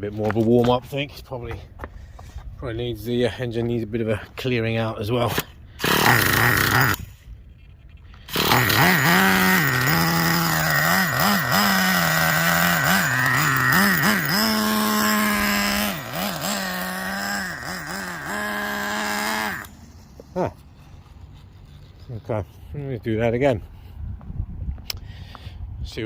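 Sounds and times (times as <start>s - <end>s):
nitro engine running unevenly: 8.3s - 22.0s.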